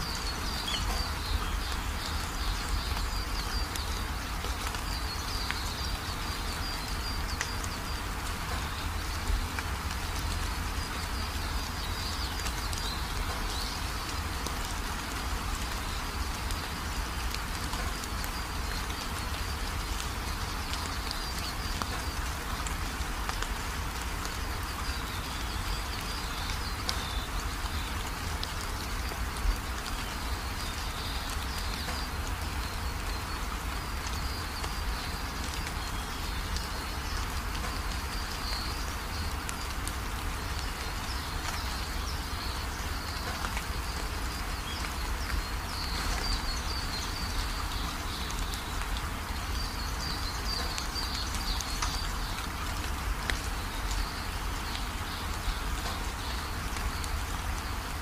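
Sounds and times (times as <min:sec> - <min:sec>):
rain drumming on a metal roof: 0:00.0 - 0:58.0
runoff water pouring and splashing: 0:00.0 - 0:58.0.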